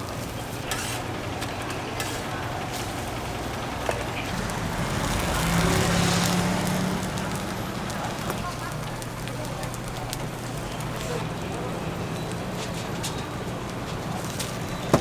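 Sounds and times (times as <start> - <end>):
vehicle passing by: 4.3 - 8.4.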